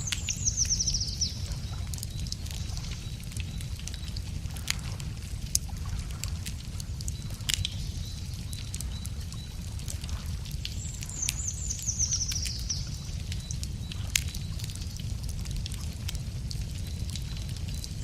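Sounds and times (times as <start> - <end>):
songbird trill: 0.0 - 4.6, 7.1 - 14.7
wood fire crackling: 0.0 - 18.0.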